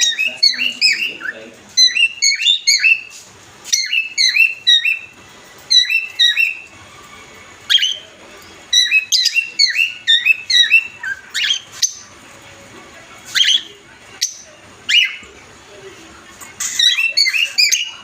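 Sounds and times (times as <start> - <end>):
cockatiels chirping whistles: 0.0 - 3.1, 3.7 - 5.1, 5.7 - 6.7, 7.7 - 8.0, 8.7 - 12.1, 13.3 - 15.2, 16.6 - 18.0.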